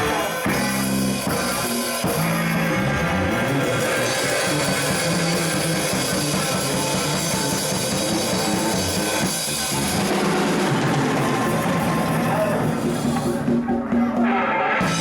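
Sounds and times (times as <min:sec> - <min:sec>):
bass guitar: 0:00.0 - 0:15.0
drum kit playing: 0:00.0 - 0:15.0
electric guitar: 0:00.0 - 0:15.0.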